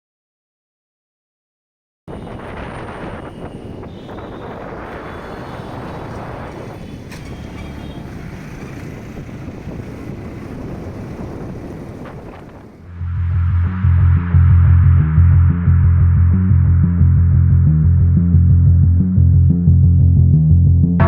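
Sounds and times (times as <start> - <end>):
wind buffeting microphone: 2.1 - 13.4.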